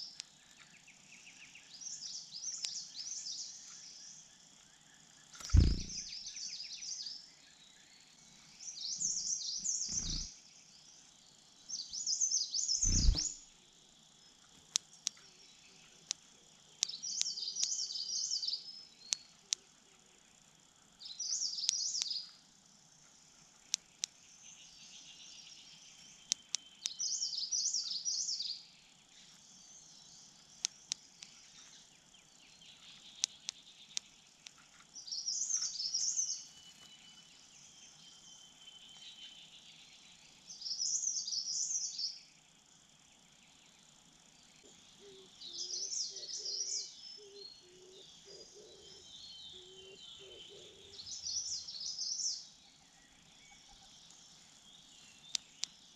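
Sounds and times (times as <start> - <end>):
songbird warbling: 5.3 - 6.3, 9.0 - 10.3, 12.0 - 13.4, 44.7 - 54.2
sharp clicks: 5.4 - 6.0, 33.2 - 34.6, 55.3 - 55.8.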